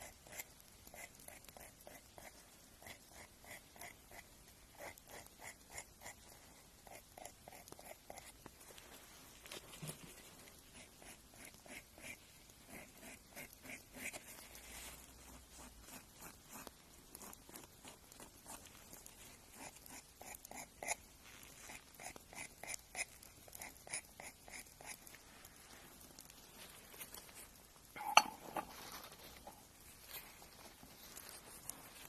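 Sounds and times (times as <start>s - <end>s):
nail file rasping on fingernails: 0.0s - 8.6s, 10.5s - 25.3s.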